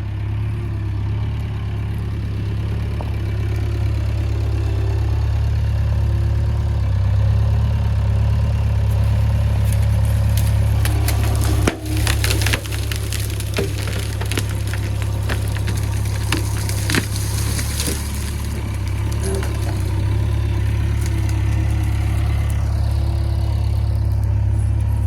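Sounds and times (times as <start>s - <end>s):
diesel engine running: 0.0s - 25.0s
ground cracking and snapping: 8.9s - 25.0s.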